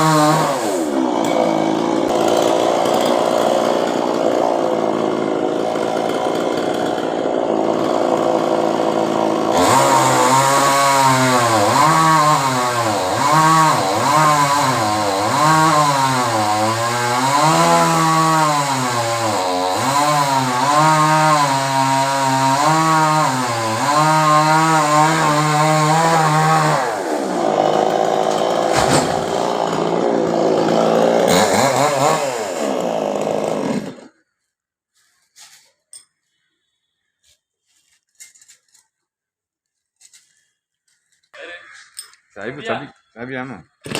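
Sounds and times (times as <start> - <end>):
chainsaw cutting wood: 0.0 - 34.3.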